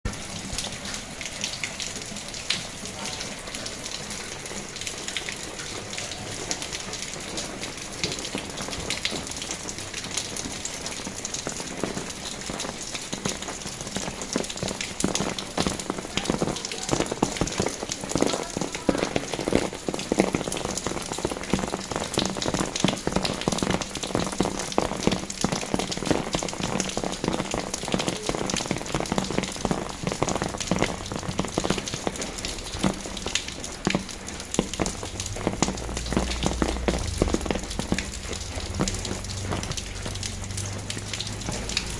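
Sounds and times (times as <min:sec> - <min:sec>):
rain on paved road: 0:00.0 - 0:41.9.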